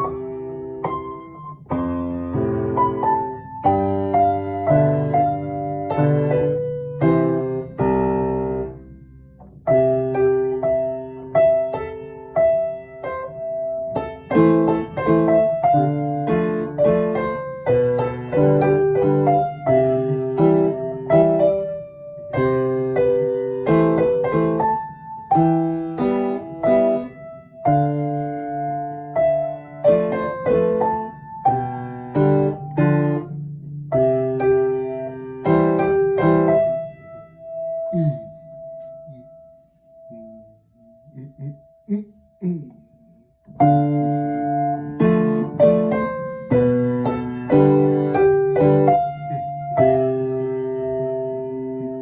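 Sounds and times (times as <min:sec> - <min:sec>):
solo piano melody: 0:00.0 - 0:52.0.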